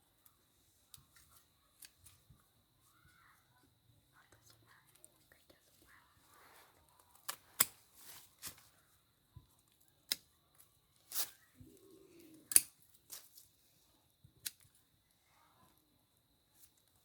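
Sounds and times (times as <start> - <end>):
sharp clicks or snips: 12.5 - 12.8.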